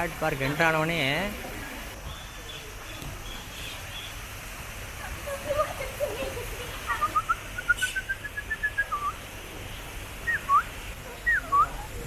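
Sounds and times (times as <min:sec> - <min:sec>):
bird whistling: 0:07.0 - 0:09.2, 0:10.2 - 0:11.7.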